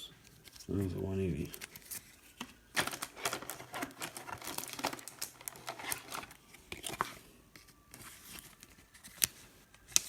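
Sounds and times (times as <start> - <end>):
cards clicking and crackling: 0.2 - 10.0
wrapper crinkling: 0.3 - 7.2.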